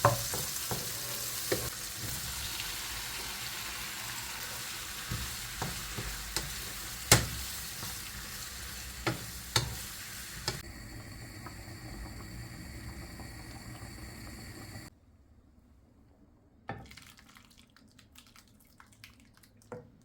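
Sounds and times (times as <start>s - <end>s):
food sizzling in a frying pan: 0.0s - 14.9s
utensil knocking against pan: 5.1s - 8.0s, 9.0s - 9.8s.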